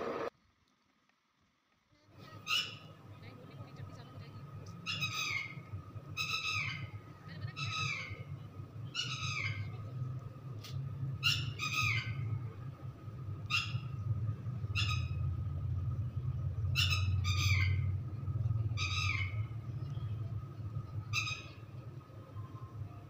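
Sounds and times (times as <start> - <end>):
steady low hum: 2.0 - 23.0
bird harsh calls: 2.2 - 3.0, 4.8 - 9.8, 11.1 - 12.4, 13.4 - 15.5, 16.6 - 20.3, 21.0 - 21.7.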